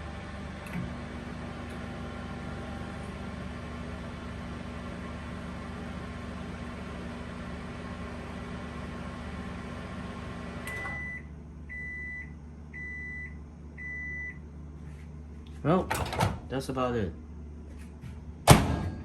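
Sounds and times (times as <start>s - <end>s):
microwave oven humming: 0.0s - 19.0s
microwave click: 10.6s - 11.2s.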